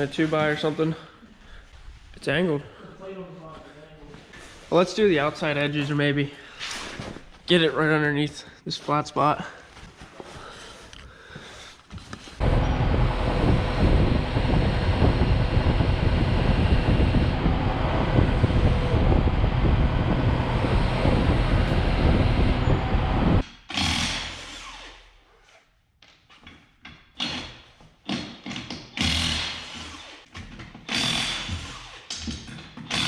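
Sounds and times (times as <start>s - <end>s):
skid steer engine running hard: 12.4s - 23.4s.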